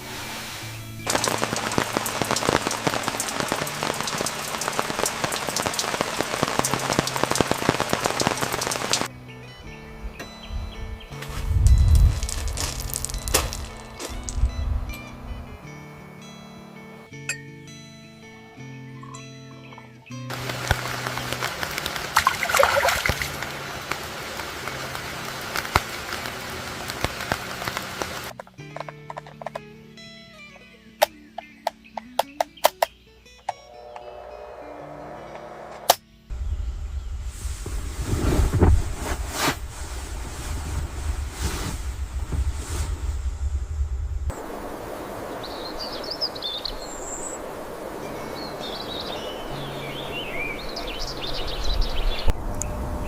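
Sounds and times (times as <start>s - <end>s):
heavy rain: 0.0s - 9.1s, 11.9s - 14.4s, 20.3s - 28.3s, 44.0s - 53.0s
raindrops hitting a surface: 0.2s - 9.1s, 11.9s - 14.4s, 20.3s - 28.4s, 37.3s - 42.9s, 44.3s - 52.4s.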